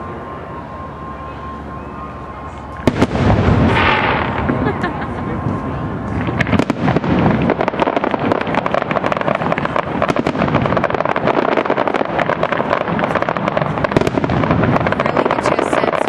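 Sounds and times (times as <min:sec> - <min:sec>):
fireworks crackling: 0:02.4 - 0:16.0.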